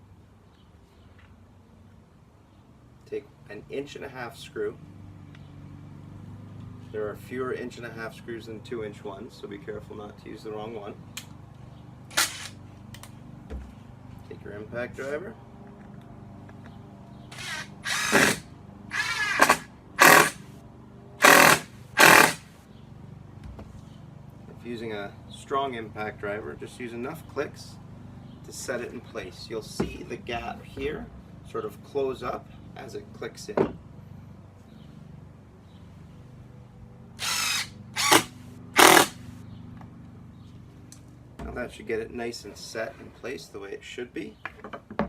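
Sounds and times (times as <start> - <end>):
impact driver driving screw: 12.1 - 12.6, 17.3 - 20.4, 21.2 - 22.5, 37.2 - 39.2.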